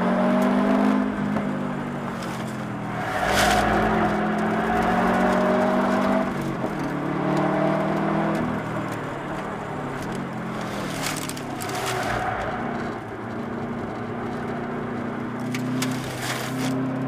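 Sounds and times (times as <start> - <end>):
car engine pulling at speed: 0.0 - 17.0
engine crackling: 0.0 - 17.0.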